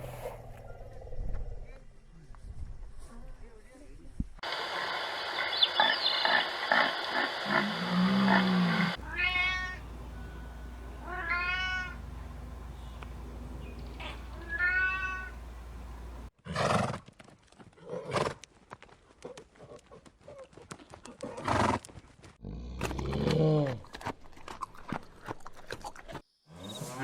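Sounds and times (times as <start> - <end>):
animal high cry: 7.4 - 10.4, 11.0 - 12.0, 14.0 - 15.4
low hum: 7.4 - 16.3.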